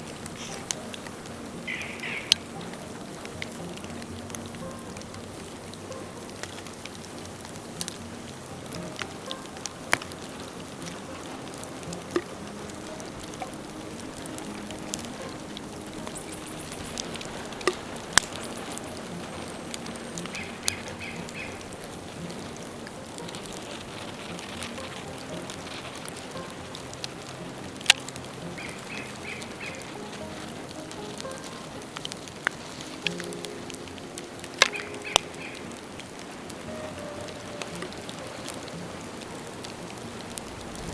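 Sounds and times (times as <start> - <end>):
bamboo fire crackling: 0.0 - 40.9
sharp pops: 8.7 - 22.4, 23.2 - 36.8.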